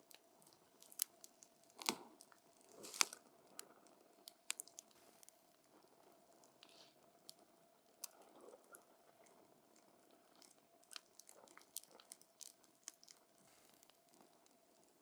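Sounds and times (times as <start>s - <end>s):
wood fire crackling: 0.0s - 7.1s.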